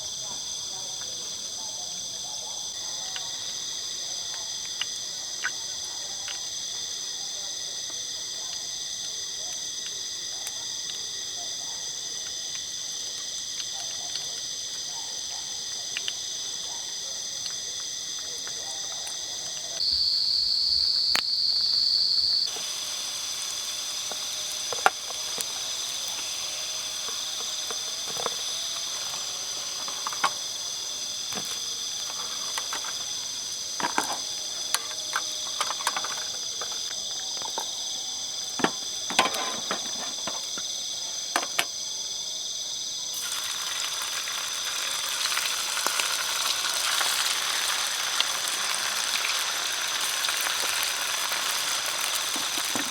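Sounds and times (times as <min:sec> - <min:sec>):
insects buzzing: 0:07.6 - 0:52.9
hiss: 0:22.4 - 0:36.8, 0:43.1 - 0:52.9.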